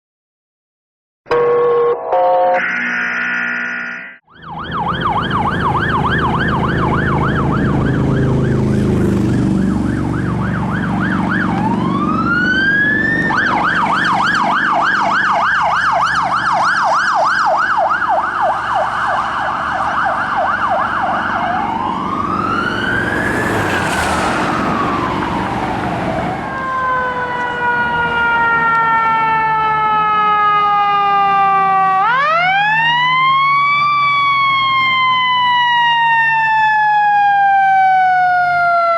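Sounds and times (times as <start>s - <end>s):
emergency vehicle sirens: 1.3s - 38.9s
heavy engine rumble: 20.7s - 28.3s.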